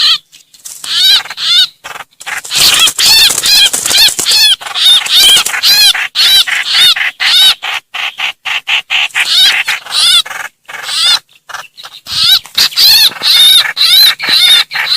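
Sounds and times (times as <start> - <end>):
bird harsh chirping cries: 0.0 - 14.9.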